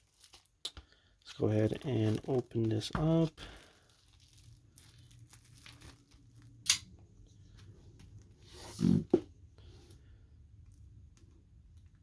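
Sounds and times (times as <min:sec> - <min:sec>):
wrapping snips and rustles: 0:00.0 - 0:06.7.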